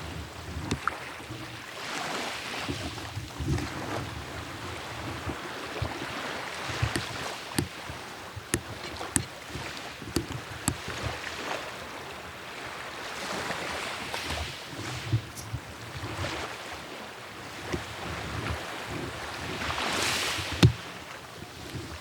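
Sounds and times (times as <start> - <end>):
sea surf washing ashore: 0.0 - 22.0
sharp clicks and knocks: 6.7 - 11.1, 20.5 - 20.9.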